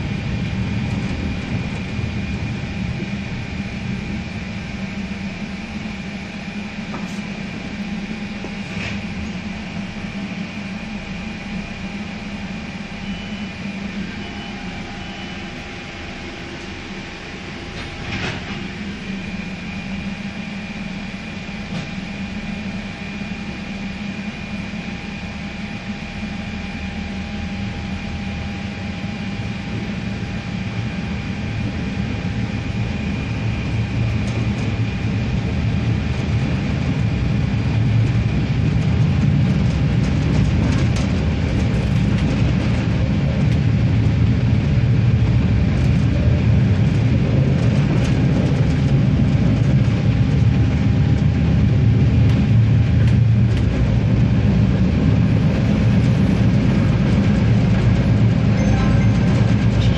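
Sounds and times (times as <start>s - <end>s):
diesel railcar running: 0.0s - 59.9s
steady whine: 0.0s - 59.9s.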